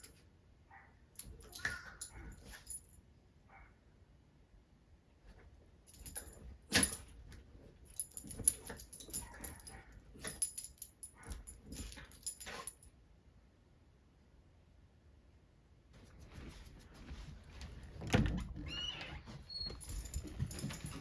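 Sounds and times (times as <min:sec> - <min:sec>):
dog collar tags jingling: 0:05.9 - 0:07.2, 0:07.8 - 0:12.9, 0:19.7 - 0:21.0.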